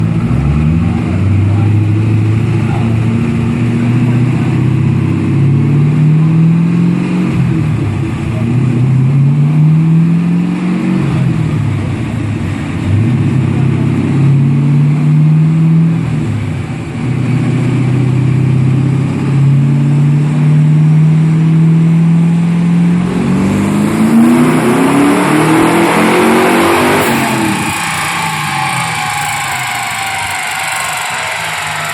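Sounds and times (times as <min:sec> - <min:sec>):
car engine at full throttle: 0:00.0 - 0:31.9.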